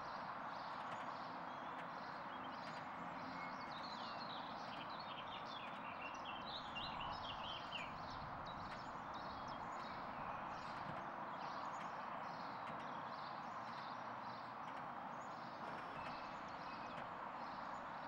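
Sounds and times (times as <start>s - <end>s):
train wheels rumbling and clattering: 6.6s - 18.0s.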